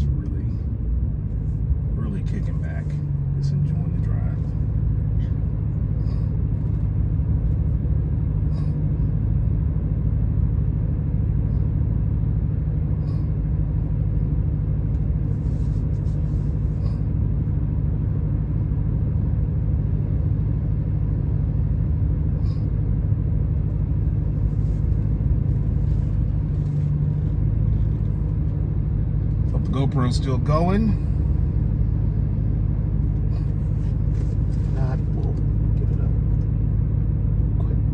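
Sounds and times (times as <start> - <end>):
car engine and exhaust droning: 0.0 - 37.9.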